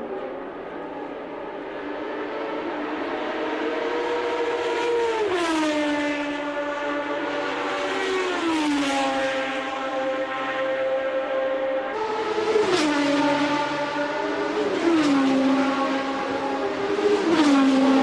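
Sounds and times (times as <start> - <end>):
racing car engine high revs: 12.0 - 18.0.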